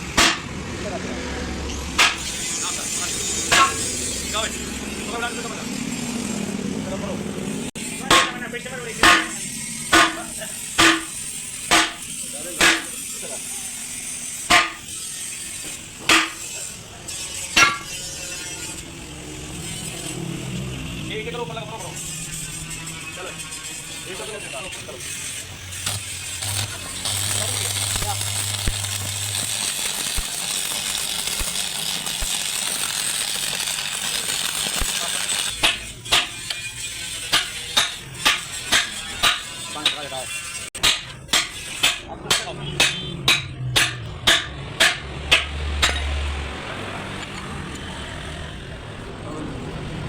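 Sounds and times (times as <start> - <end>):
hammer striking metal: 0.1 - 0.5, 2.0 - 2.3, 3.5 - 3.9, 8.0 - 8.4, 9.0 - 13.0, 14.5 - 14.9, 15.6 - 16.5, 17.5 - 18.0, 25.8 - 40.0, 40.8 - 46.2.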